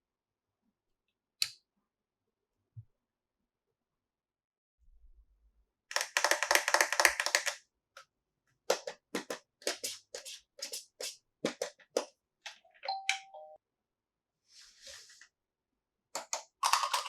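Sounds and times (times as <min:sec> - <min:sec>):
plastic toy pieces clacking: 0:05.9 - 0:07.6, 0:16.2 - 0:17.0.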